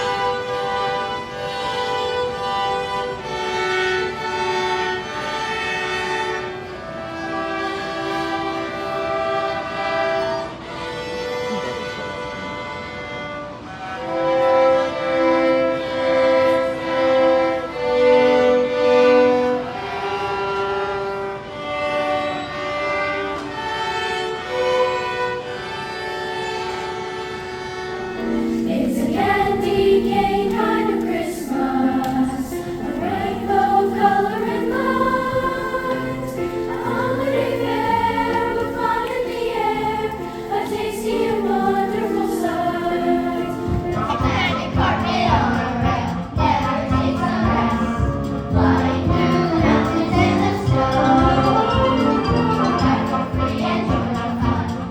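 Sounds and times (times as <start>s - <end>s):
choir singing: 0.0s - 12.6s, 28.1s - 54.9s
held slowly changing chords: 28.2s - 54.9s.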